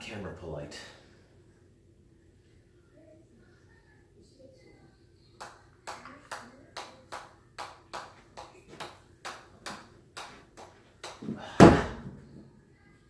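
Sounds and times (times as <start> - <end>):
loud thump: 11.4 - 12.2.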